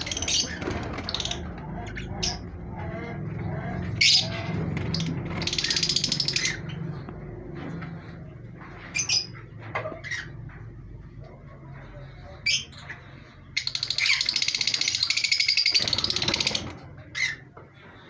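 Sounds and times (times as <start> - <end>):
parrot chirps: 13.6 - 16.5
parrot harsh chatter: 13.6 - 16.6.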